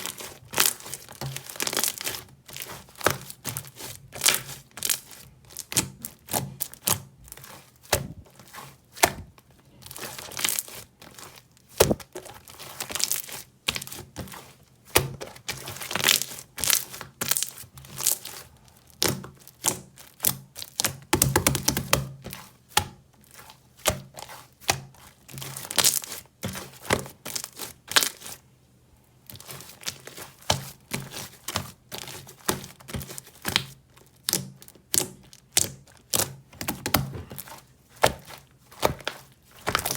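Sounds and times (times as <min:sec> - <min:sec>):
jelly-like object crackling: 0:00.0 - 0:28.5, 0:29.2 - 0:39.9.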